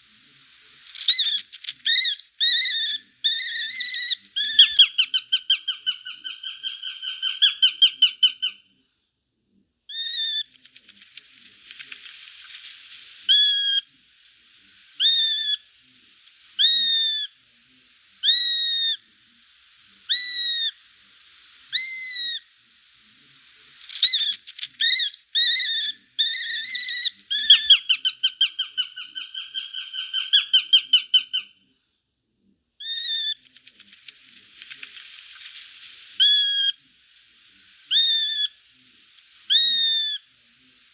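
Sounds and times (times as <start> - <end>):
bird trills: 1.0 - 8.7, 9.9 - 10.5, 13.3 - 13.9, 15.0 - 15.7, 16.6 - 17.4, 18.2 - 19.0, 20.1 - 20.8, 21.7 - 22.5, 23.9 - 31.6, 32.8 - 33.5, 36.2 - 36.8, 37.9 - 38.6, 39.5 - 40.3
bird whistling notes: 24.0 - 31.5.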